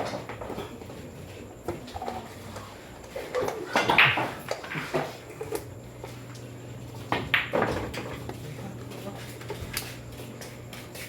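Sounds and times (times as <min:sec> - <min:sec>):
room murmur: 0:00.0 - 0:11.0
pool balls clacking: 0:01.6 - 0:05.8, 0:07.0 - 0:08.4.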